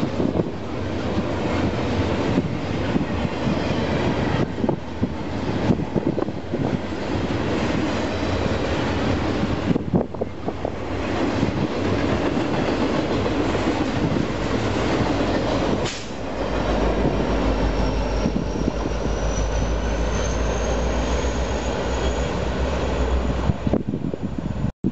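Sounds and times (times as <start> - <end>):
train wheels rolling on rails: 0.0 - 24.6
diesel locomotive engine drone: 0.0 - 24.7
faint high wheel squeal: 17.8 - 23.4.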